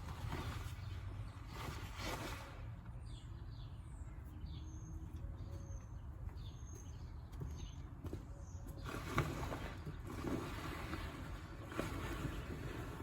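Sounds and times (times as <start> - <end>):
birds chirping: 2.9 - 10.1.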